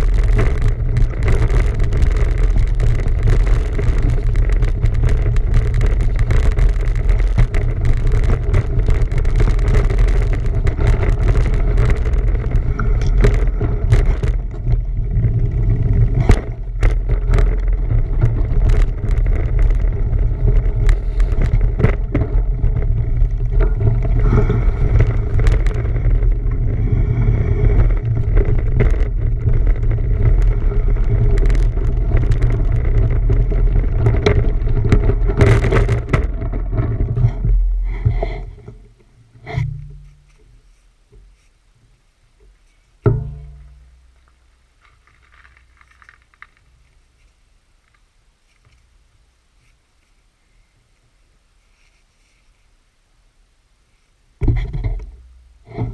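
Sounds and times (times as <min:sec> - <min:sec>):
bicycle clicks and knocks: 0:00.0 - 0:26.7
wind rumbling on microphone: 0:00.0 - 0:41.4, 0:54.4 - 0:55.9.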